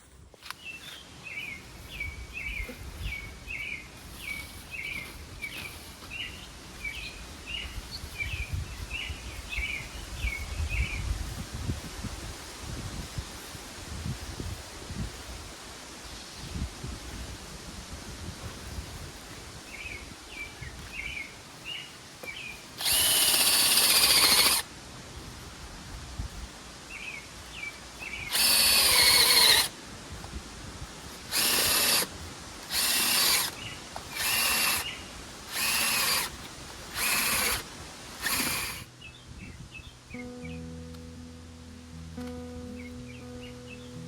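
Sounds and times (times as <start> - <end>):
power drill whining: 22.8 - 24.6, 28.3 - 29.7, 31.3 - 38.9.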